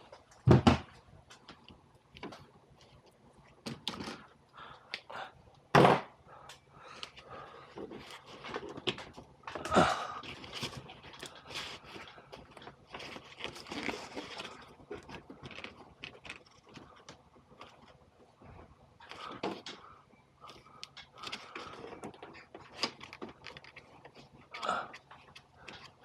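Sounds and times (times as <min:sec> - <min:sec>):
copper pipe being handled: 0:07.0 - 0:26.0.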